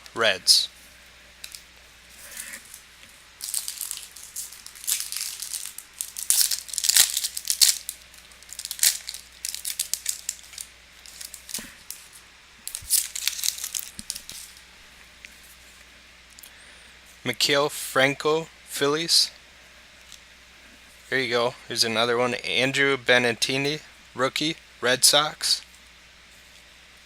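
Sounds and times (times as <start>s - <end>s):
foil wrapper crinkling and tearing: 1.4s - 14.7s.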